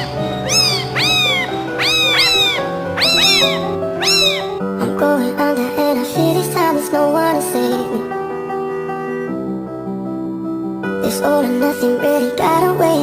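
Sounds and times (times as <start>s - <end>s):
cat meowing: 0.0s - 4.6s
background music: 0.0s - 13.0s.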